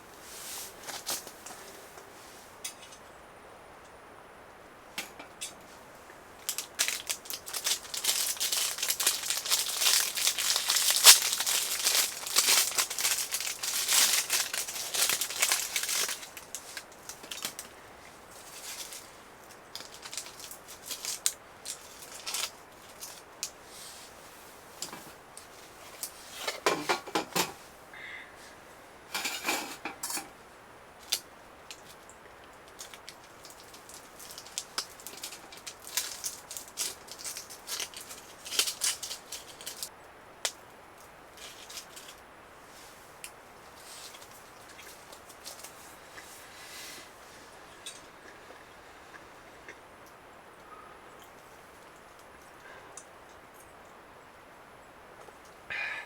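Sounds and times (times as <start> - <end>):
crinkling and rustling handling noise: 0.0 - 3.0, 5.0 - 30.4, 31.0 - 49.3.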